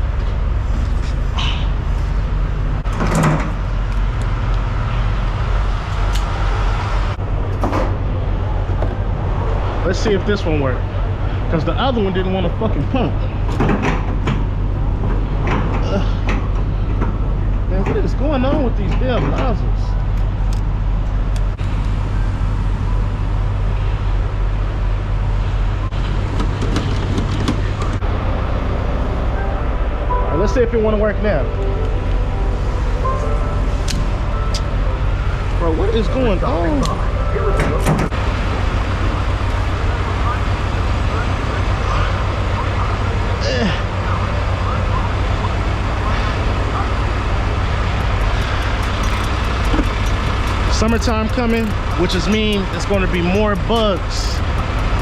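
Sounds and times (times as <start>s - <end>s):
diesel engine idling: 0.0s - 2.9s, 3.5s - 55.0s
sharp clicks and knocks: 13.5s - 17.2s, 26.3s - 28.0s, 48.0s - 55.0s.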